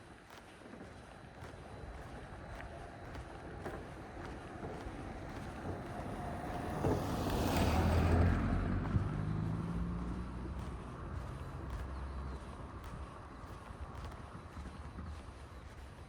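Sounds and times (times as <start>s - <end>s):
low engine hum: 0.7s - 16.0s
vehicle passing: 2.2s - 14.7s.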